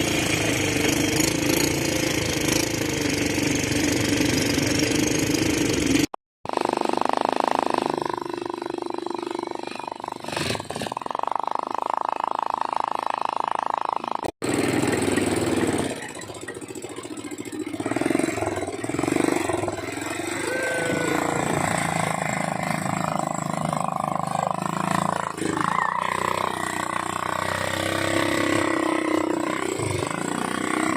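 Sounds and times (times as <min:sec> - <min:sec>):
atv engine running: 0:00.0 - 0:30.9.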